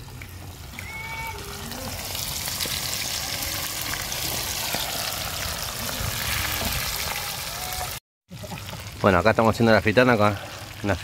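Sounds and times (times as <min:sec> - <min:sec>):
fish sizzling in hot oil: 0:00.5 - 0:09.2.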